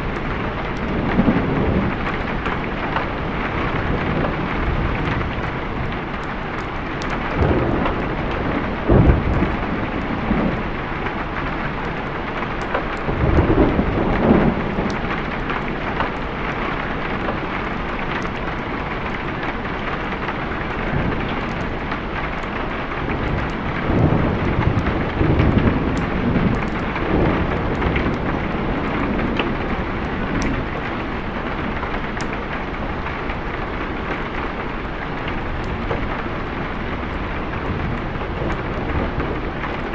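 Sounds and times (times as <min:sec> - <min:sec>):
heavy rain: 0:00.0 - 0:39.9
thunder rolling: 0:07.3 - 0:11.0, 0:23.0 - 0:30.8, 0:37.0 - 0:39.9.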